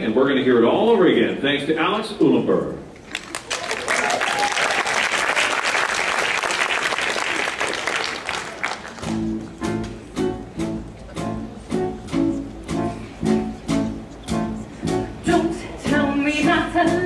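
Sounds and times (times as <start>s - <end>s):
audience applause: 3.0s - 9.3s
instrumental music with accented chords: 9.0s - 17.0s.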